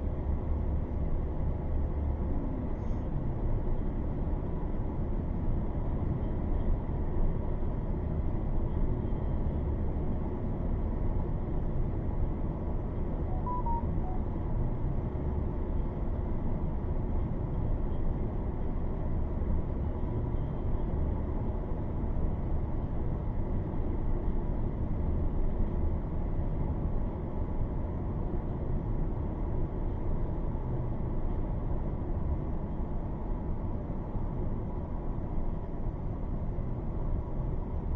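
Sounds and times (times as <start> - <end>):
faint short beeps: 13.3 - 14.4.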